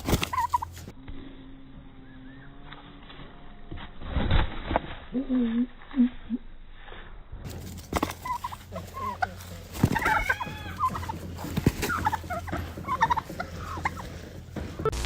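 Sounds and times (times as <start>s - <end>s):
poultry warbling calls: 0.1s - 0.9s, 7.9s - 14.6s.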